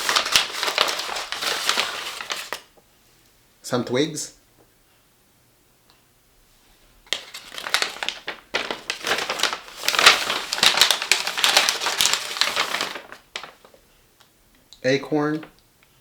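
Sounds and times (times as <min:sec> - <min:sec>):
packaging crinkling: 0:00.0 - 0:02.7, 0:07.1 - 0:13.8.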